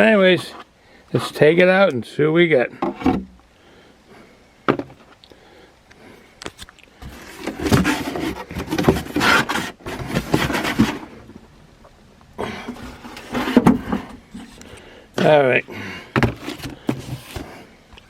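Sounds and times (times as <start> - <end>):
packaging rustling and knocking: 7.0 - 11.1, 13.2 - 14.5, 16.1 - 17.6.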